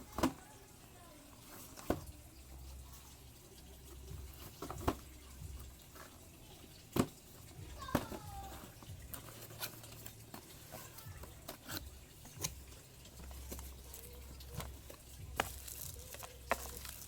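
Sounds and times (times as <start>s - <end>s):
clicks and taps of handling packaging: 0.0s - 0.5s, 1.5s - 2.2s, 4.2s - 17.0s.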